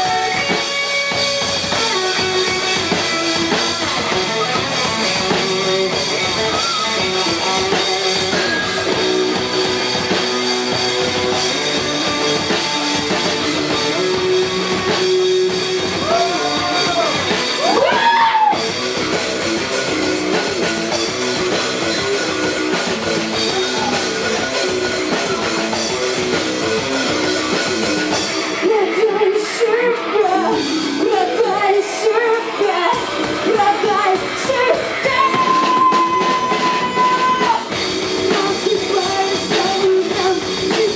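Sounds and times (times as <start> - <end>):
person singing: 0.0 - 0.6, 28.6 - 40.9
drum kit: 0.0 - 40.9
electric guitar: 0.0 - 40.9.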